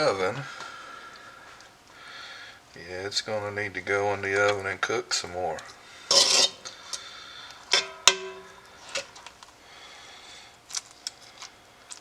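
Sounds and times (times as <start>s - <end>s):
metal utensil knocking on pot: 7.8s - 8.6s.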